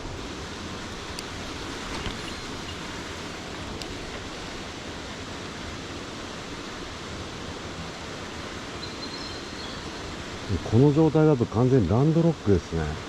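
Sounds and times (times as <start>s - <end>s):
falling water rushing: 0.0s - 8.7s.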